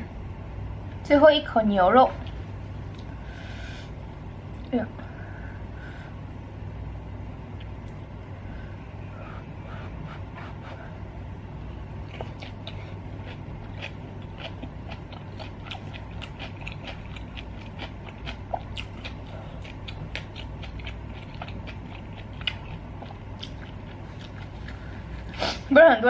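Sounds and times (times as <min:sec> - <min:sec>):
steady low hum: 0:00.0 - 0:26.0
person chewing food: 0:11.9 - 0:25.7.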